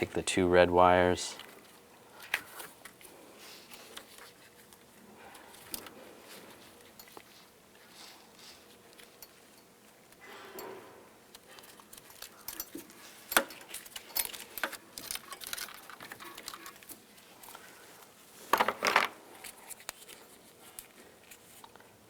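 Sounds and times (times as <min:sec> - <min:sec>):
wires and hand tool clicking: 0:11.3 - 0:17.6.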